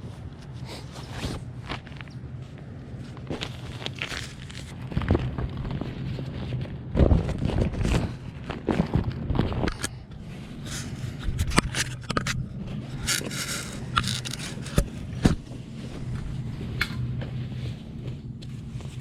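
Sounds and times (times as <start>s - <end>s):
steady low hum: 0.0s - 19.0s
camping gear scraping and rustling: 0.5s - 6.6s, 10.2s - 16.4s.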